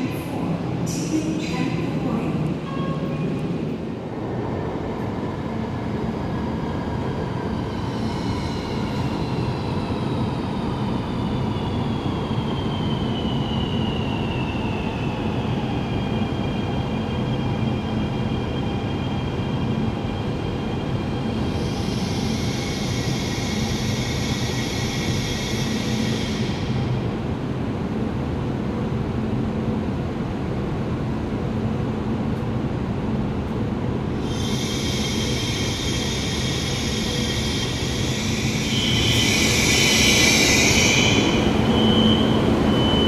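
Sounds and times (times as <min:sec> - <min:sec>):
train rumble: 0:00.0 - 0:43.0
train hiss: 0:07.5 - 0:11.0, 0:21.4 - 0:27.0, 0:34.2 - 0:42.5
train whine falling in pitch: 0:37.6 - 0:43.0.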